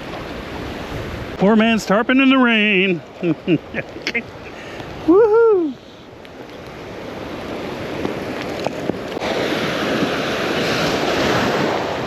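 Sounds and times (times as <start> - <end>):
wind buffeting microphone: 0.0 - 1.8, 4.2 - 12.0
surf washing in: 0.0 - 12.0.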